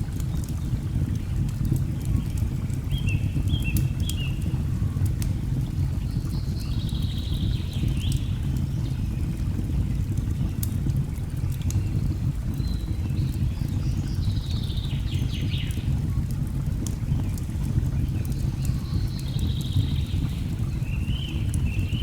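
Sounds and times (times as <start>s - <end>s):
wood fire crackling: 3.8s - 5.7s, 15.6s - 22.0s.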